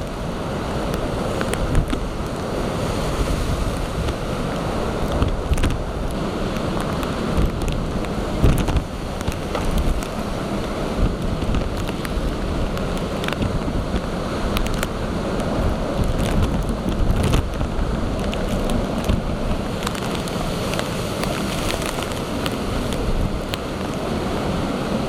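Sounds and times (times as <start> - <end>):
breaking waves: 0.0 - 25.0
rain or spray ticks: 0.0 - 25.0
wind buffeting microphone: 0.0 - 25.0.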